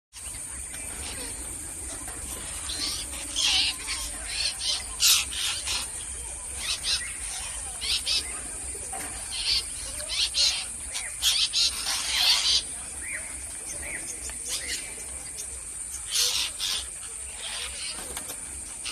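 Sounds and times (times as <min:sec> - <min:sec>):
parrots calling: 0:09.2 - 0:12.8.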